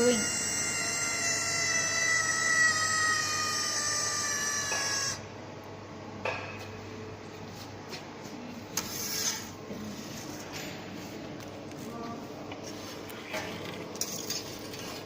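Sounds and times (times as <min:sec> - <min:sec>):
welding machine whine: 0:00.0 - 0:05.2.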